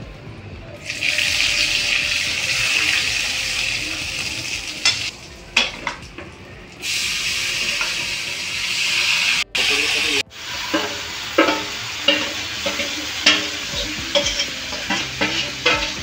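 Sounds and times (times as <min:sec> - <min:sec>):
spices sizzling in hot oil: 0:00.8 - 0:05.8, 0:06.8 - 0:16.0
spatula clanking against metal: 0:04.8 - 0:06.3, 0:10.4 - 0:16.0.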